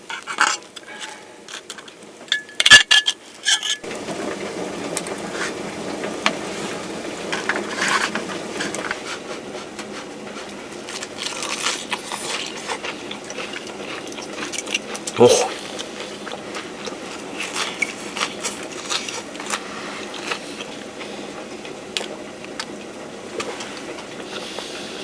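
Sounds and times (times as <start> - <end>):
metal cookware clinking: 0.0 - 3.9
hiss with small crackles: 15.5 - 25.0.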